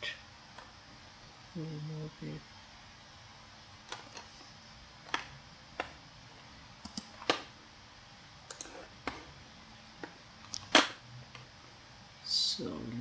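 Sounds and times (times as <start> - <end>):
computer mouse clicking: 6.8 - 7.4, 8.5 - 11.5.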